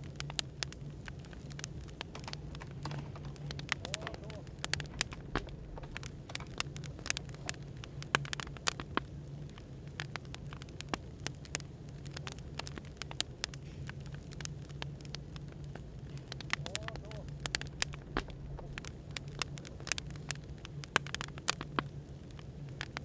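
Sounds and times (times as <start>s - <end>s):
low background hum and hiss: 0.0s - 23.0s
wood fire crackling: 0.0s - 23.0s.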